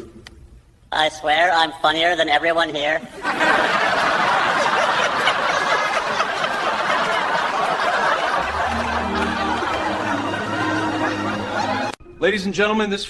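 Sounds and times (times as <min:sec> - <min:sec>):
group of people laughing: 0:03.1 - 0:12.0
steady musical notes: 0:04.0 - 0:12.4.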